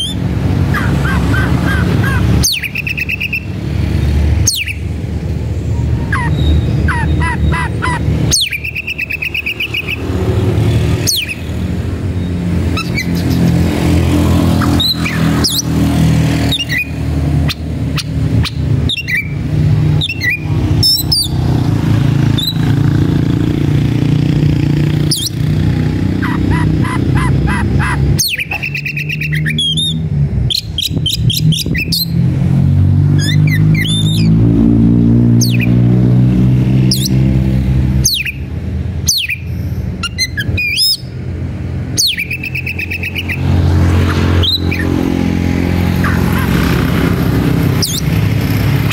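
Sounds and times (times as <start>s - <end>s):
bird singing whistles and trills: 0.0s - 0.2s, 0.8s - 3.6s, 4.4s - 4.9s, 5.8s - 10.1s, 11.0s - 11.5s, 16.4s - 21.4s, 28.2s - 32.2s, 33.2s - 34.4s, 35.4s - 35.8s, 38.0s - 38.5s, 39.1s - 41.1s, 42.0s - 43.4s, 47.8s - 48.1s.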